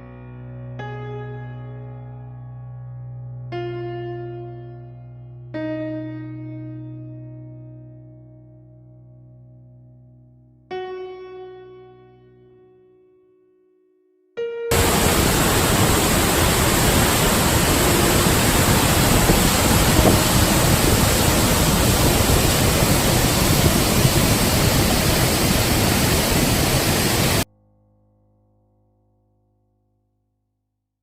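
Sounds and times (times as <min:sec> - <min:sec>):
waterfall rushing: 0:14.7 - 0:27.4.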